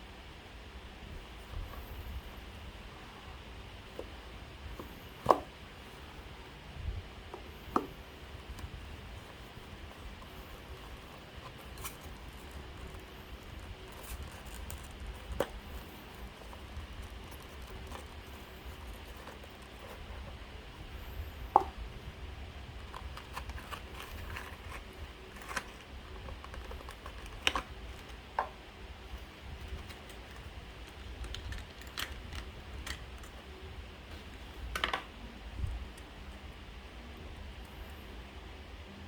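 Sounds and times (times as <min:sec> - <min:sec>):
plastic packaging clicks and taps: 0:21.5 - 0:21.8.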